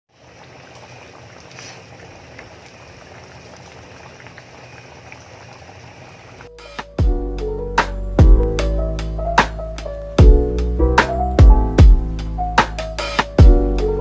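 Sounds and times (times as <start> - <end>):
stew bubbling in a pot: 0.1 - 6.5.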